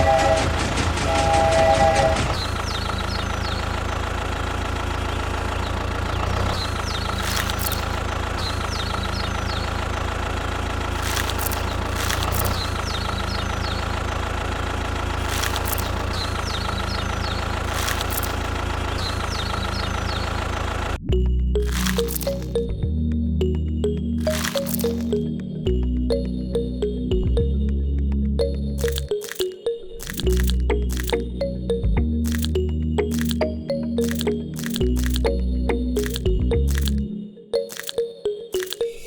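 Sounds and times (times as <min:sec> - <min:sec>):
vehicle engine idling: 0:02.4 - 0:21.0.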